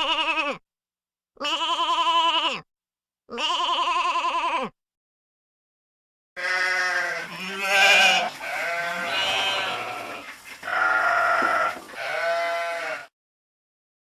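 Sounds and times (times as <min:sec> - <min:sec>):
sheep bleating: 0:00.0 - 0:00.6, 0:01.4 - 0:02.7, 0:03.3 - 0:04.8, 0:06.4 - 0:13.1.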